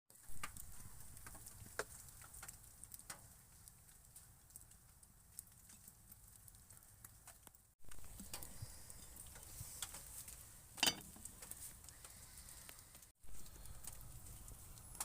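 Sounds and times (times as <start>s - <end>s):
campfire crackling: 0.1s - 15.0s.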